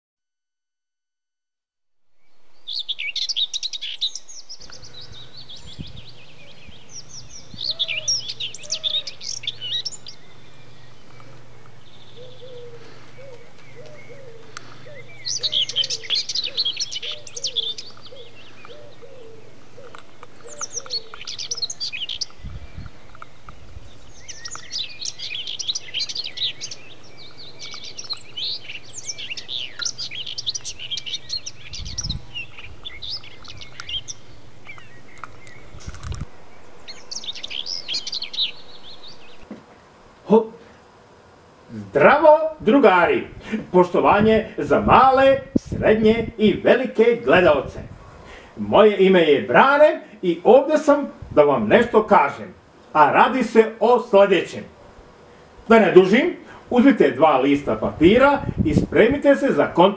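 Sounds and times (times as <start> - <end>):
small birds chirping: 2.1 - 59.9
faint steady hum: 2.3 - 59.9.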